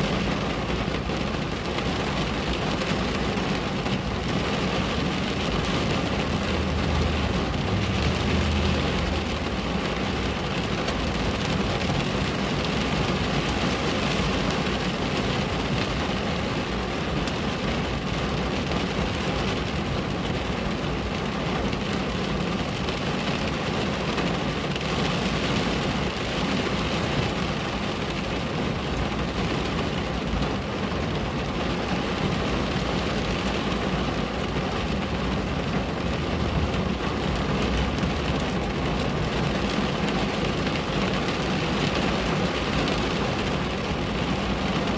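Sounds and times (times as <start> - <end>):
rain on a window: 0.0 - 44.9
low rumble: 5.5 - 11.9.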